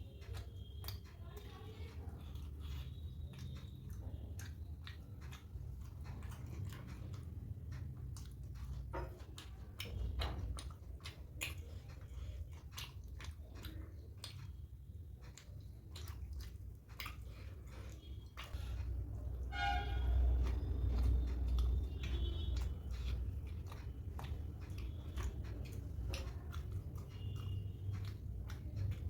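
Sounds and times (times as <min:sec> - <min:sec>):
mouth clicks and smacks: 0:00.0 - 0:29.0
person chewing food: 0:00.0 - 0:29.0.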